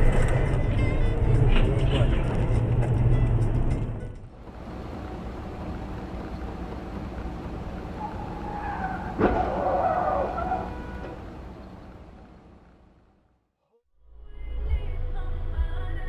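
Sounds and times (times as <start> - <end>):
road noise: 0.0 - 16.0
car tyres squealing: 7.9 - 11.6.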